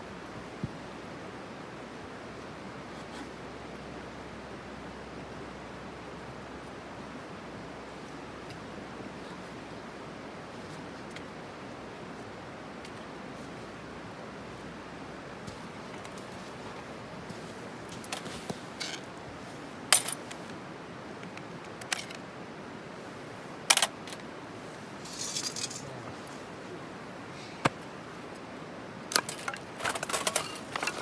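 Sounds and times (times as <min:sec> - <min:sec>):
faint fire crackles: 0:00.0 - 0:31.0
campfire hissing: 0:22.7 - 0:29.2.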